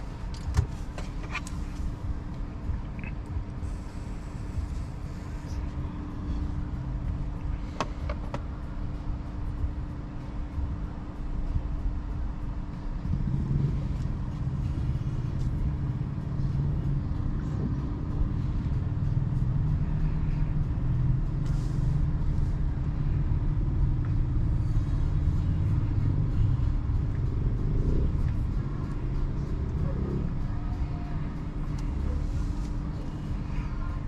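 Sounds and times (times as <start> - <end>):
tyre and road rumble: 0.0 - 34.0.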